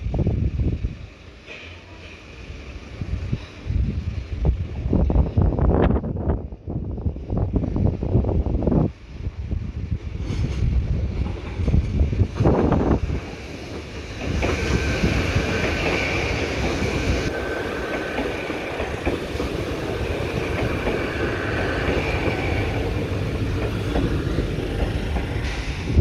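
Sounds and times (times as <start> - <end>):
wind buffeting microphone: 0.0 - 1.2, 2.5 - 26.0
train wheels rolling on track: 0.0 - 26.0
high tone from train: 13.8 - 26.0.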